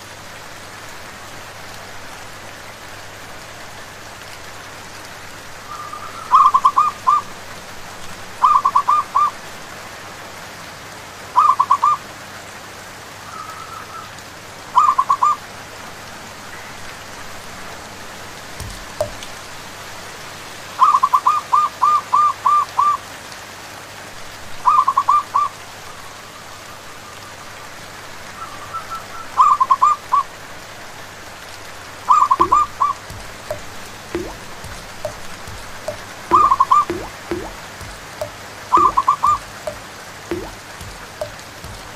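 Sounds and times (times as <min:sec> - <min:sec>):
rain hissing: 0:00.0 - 0:11.4, 0:14.2 - 0:22.3, 0:22.9 - 0:41.9.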